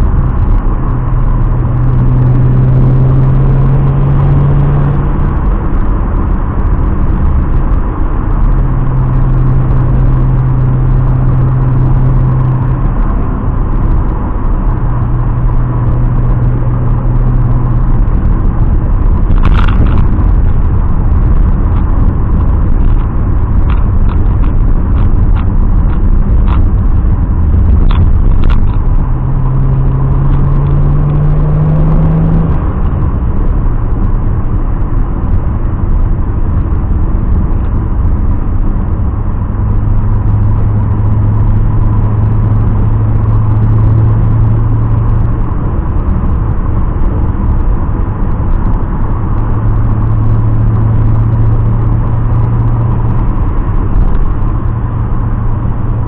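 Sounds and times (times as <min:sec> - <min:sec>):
car engine rumbling: 0:00.0 - 0:56.0.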